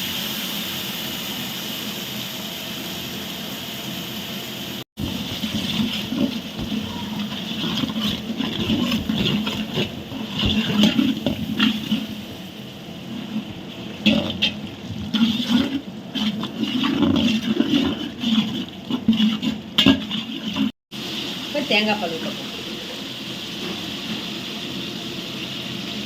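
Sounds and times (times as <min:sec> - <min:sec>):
oil sizzling in a pot: 0:00.0 - 0:26.0
knocks and scrapes in a pot: 0:05.0 - 0:12.4, 0:13.1 - 0:20.8.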